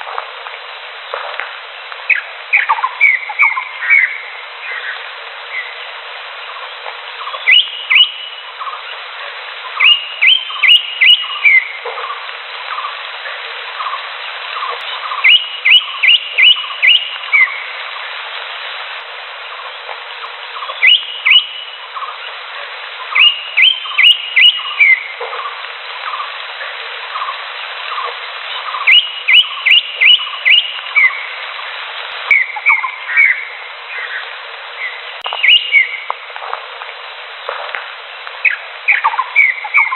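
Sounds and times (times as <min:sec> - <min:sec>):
bird singing rising whistled notes: 0:02.1 - 0:05.8, 0:06.5 - 0:08.9, 0:09.7 - 0:11.8, 0:14.6 - 0:17.7, 0:20.6 - 0:22.1, 0:23.1 - 0:25.2, 0:28.5 - 0:31.3, 0:32.3 - 0:34.2, 0:34.8 - 0:36.1, 0:38.4 - 0:39.9
softer lower repeated bird notes: 0:06.5 - 0:08.9.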